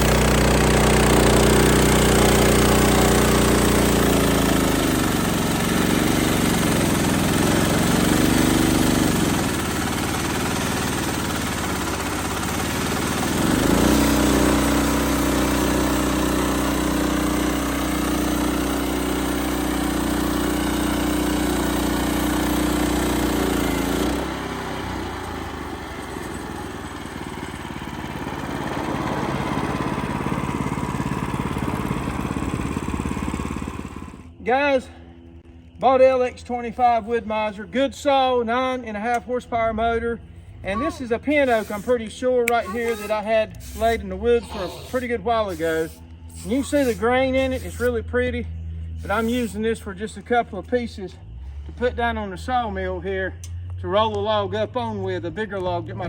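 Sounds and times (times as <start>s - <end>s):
band sawmill motor running: 0.0s - 34.5s, 40.7s - 56.0s
band blade sawing through log: 41.4s - 42.0s, 42.7s - 48.0s, 49.0s - 49.6s.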